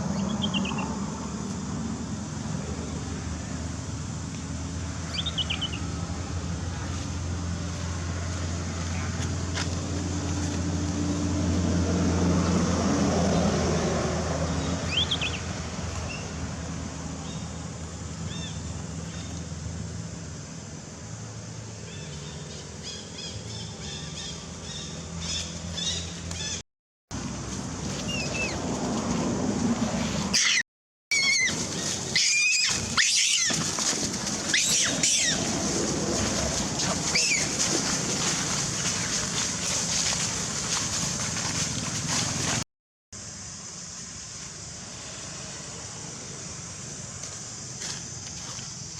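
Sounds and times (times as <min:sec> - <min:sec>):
low engine-like hum: 0:00.0 - 0:42.6, 0:43.2 - 0:48.9
high squeaks: 0:30.3 - 0:33.8
baby monkey crying: 0:30.4 - 0:33.6, 0:34.5 - 0:35.4.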